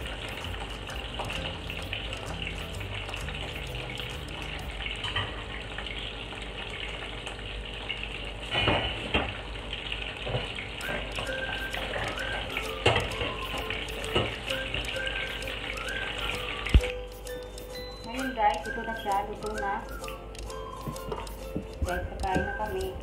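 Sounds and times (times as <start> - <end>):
chicken sizzling in a pan: 0.0 - 16.8
sharp clicks: 10.8 - 23.0.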